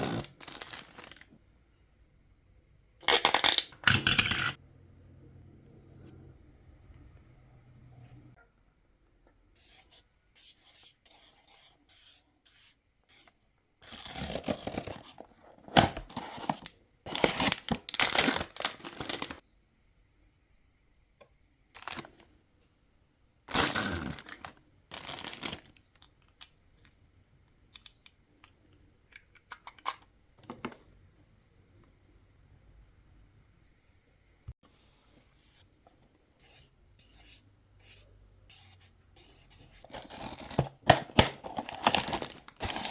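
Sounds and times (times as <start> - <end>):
packaging tearing and crinkling: 0.0 - 1.2, 15.7 - 19.4, 23.5 - 25.7, 39.8 - 42.9.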